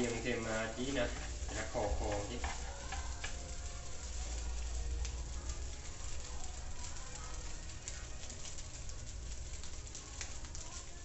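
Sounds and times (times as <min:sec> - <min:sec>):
rice sizzling in a frying pan: 0:00.0 - 0:11.0.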